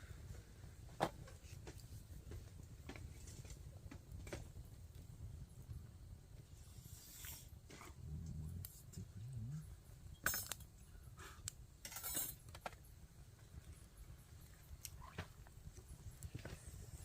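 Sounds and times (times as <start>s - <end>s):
low background rumble: 0.0s - 11.8s
sharp clicks and light clinks: 10.2s - 10.7s.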